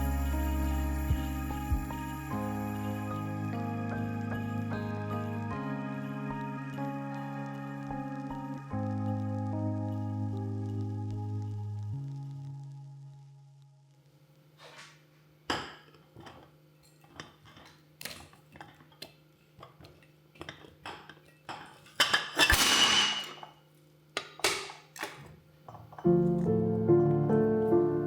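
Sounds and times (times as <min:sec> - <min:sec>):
low steady hum: 0:00.0 - 0:06.8
dishes clinking and clattering: 0:15.5 - 0:17.8, 0:19.6 - 0:23.6, 0:24.2 - 0:26.1.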